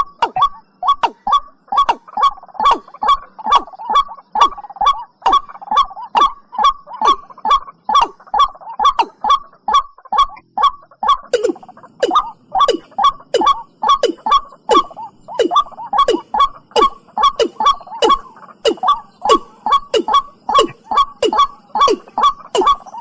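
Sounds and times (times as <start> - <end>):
bird calls: 0.0 - 23.0.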